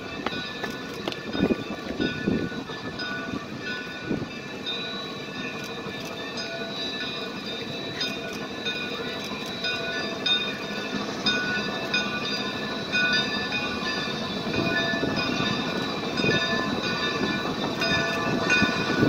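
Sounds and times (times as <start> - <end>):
steam locomotive running on rails: 0.0 - 19.0.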